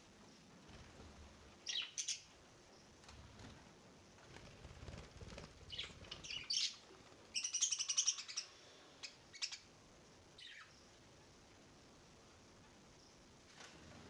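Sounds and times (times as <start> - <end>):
pet birds chirping: 1.6 - 3.0, 5.3 - 9.7, 10.4 - 11.0.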